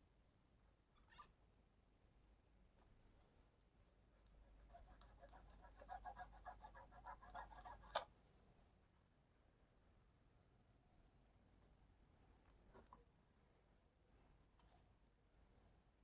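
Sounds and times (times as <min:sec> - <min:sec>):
scratchy scrubbing strokes: 0:04.3 - 0:08.1.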